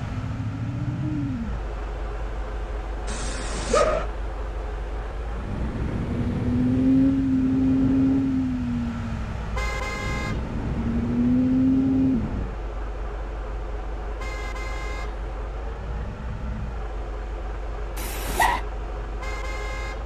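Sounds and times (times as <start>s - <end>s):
truck engine revving: 5.1s - 12.6s.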